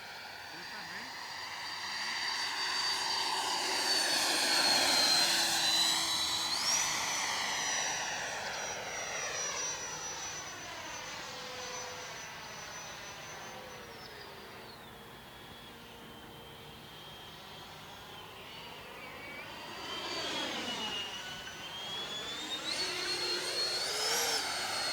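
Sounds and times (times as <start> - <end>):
electric ducted fan jet whine: 12.9 - 24.9.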